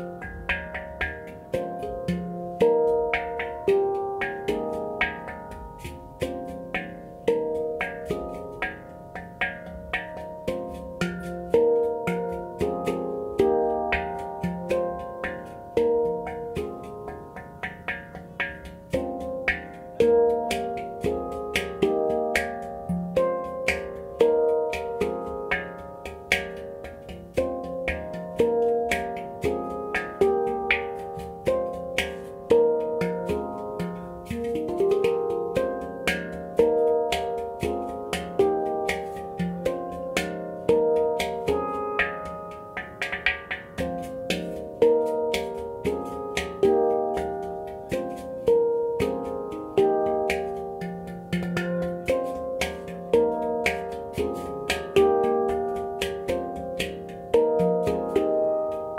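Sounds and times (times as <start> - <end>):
handpan notes ringing: 0.0 - 58.9.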